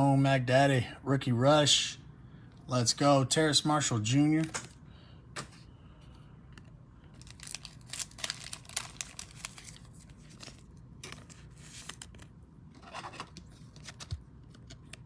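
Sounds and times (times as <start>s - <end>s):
trading cards and packaging handled: 4.3s - 15.0s.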